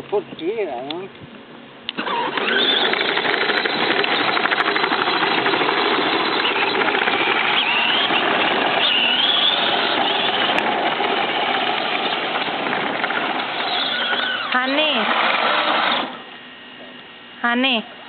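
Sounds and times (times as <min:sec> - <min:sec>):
small motorcycle motor running: 0:02.0 - 0:16.3.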